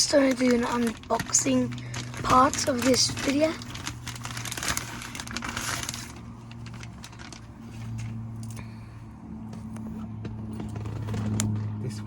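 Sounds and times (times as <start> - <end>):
packaging rustling: 0.0 - 8.1.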